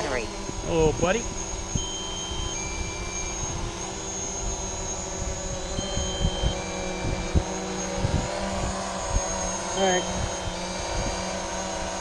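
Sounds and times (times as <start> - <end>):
drone motors whining: 0.0 - 12.0
falling two-tone beep: 1.5 - 7.7, 9.3 - 11.4
wind thumping on microphone: 5.2 - 11.3.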